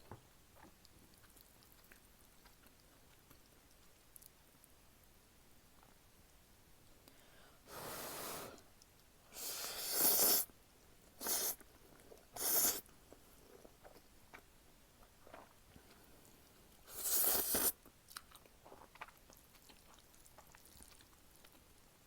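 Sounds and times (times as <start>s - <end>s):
slurping noodles: 9.4s - 10.5s, 11.2s - 11.6s, 12.4s - 12.8s, 16.9s - 17.8s.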